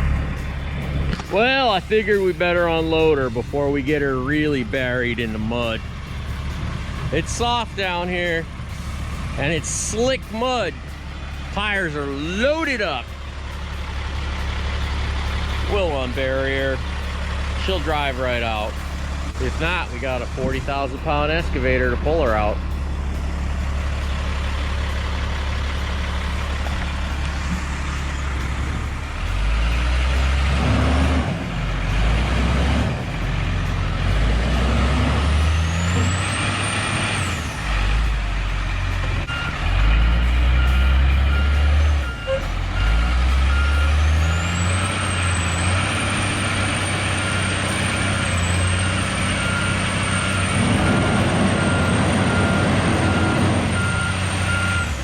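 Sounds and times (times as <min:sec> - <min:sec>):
diesel engine under load: 0:00.0 - 0:55.0
backup alarm beeping: 0:47.2 - 0:55.0.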